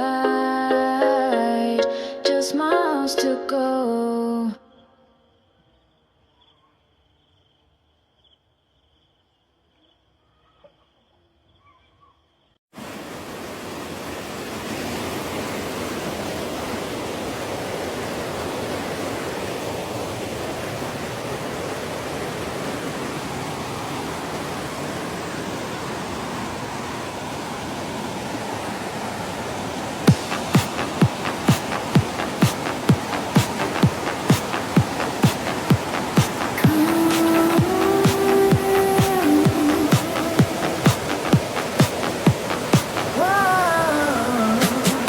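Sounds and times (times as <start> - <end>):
waterfall rushing: 12.8 - 45.0.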